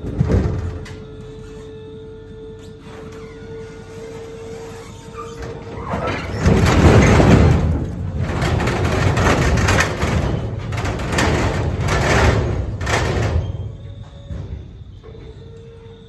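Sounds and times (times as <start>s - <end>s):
logs tumbling off trailer: 5.4s - 15.2s.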